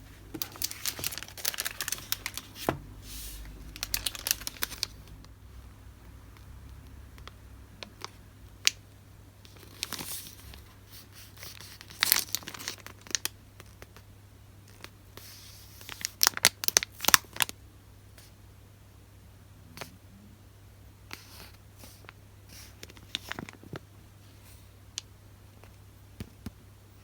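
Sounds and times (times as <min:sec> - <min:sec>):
paper crinkling and rustling: 0:00.2 - 0:05.2, 0:09.5 - 0:10.7, 0:11.4 - 0:14.0.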